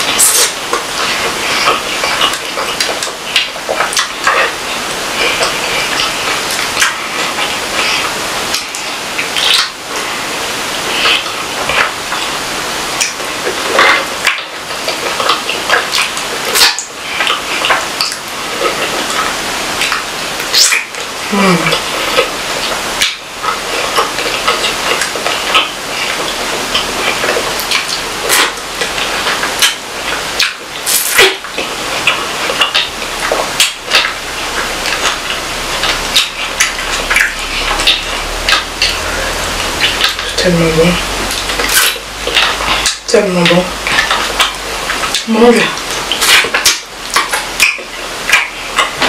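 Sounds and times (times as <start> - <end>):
wet chewing and mouth smacks: 0.0 - 40.4, 41.0 - 49.0
steady hiss: 0.0 - 49.0
clicks and crackles: 41.3 - 43.1.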